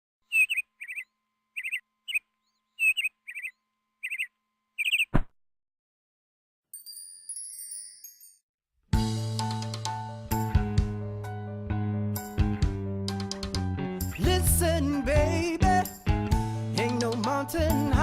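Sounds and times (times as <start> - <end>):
bird-like chirps: 0.3 - 5.2
high tinkling chime tones: 6.7 - 8.5.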